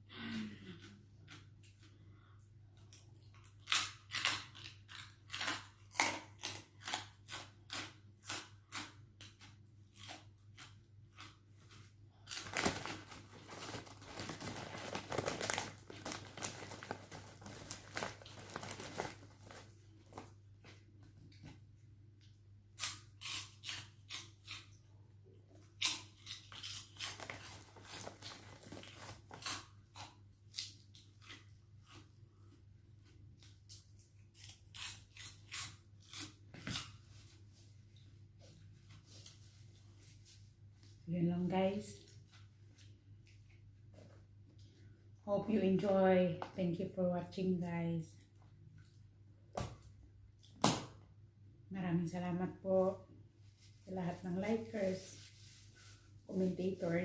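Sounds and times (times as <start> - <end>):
pork rinds crunched and chewed: 3.0 - 9.0, 25.6 - 32.2.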